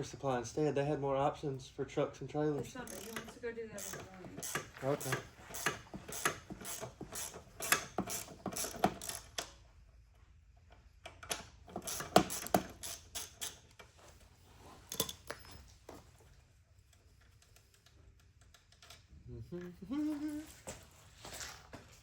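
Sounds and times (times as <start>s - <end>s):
ratchet wrench clicking: 2.8s - 9.6s, 11.7s - 13.9s.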